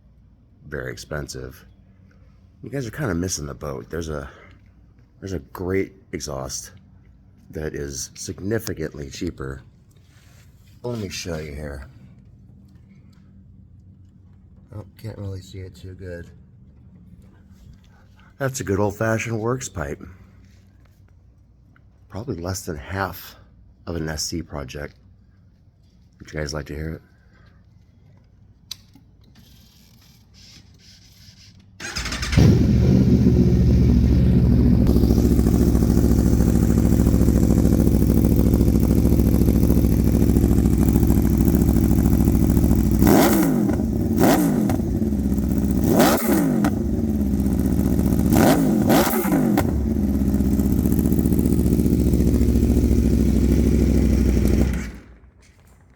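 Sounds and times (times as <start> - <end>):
engine revving: 31.8 - 55.2
motorcycle engine idling: 31.8 - 55.3.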